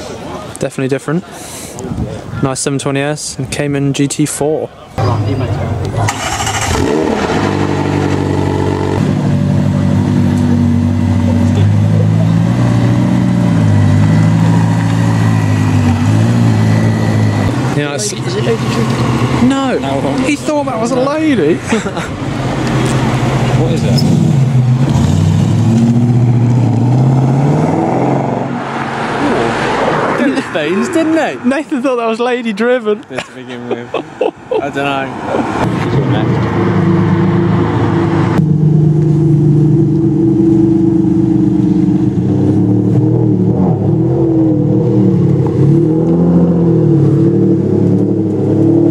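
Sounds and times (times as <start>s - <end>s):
car engine running: 5.0s - 27.4s, 35.6s - 48.9s.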